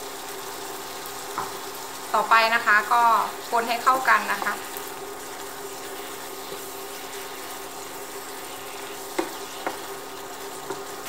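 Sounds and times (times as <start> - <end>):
meat sizzling in a pan: 0.0 - 11.0
wooden spatula scraping a pan: 4.2 - 11.0
spatula knocking against pan: 9.1 - 9.9.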